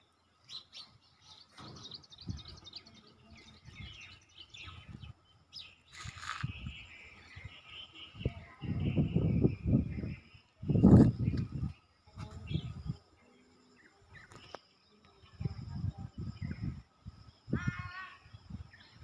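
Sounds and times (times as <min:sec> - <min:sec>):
small birds chirping: 0:00.0 - 0:19.0
wind buffeting microphone: 0:01.7 - 0:05.4, 0:06.0 - 0:13.1, 0:15.2 - 0:19.0.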